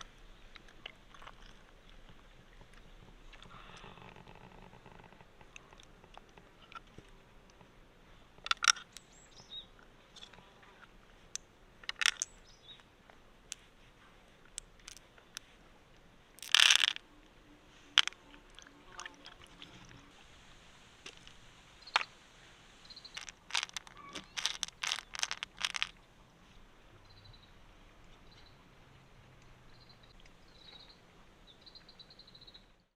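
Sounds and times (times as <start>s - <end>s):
hard objects clicking and crunching: 8.4s - 9.0s, 11.8s - 12.3s, 16.4s - 17.0s, 18.0s - 19.4s, 23.1s - 25.9s.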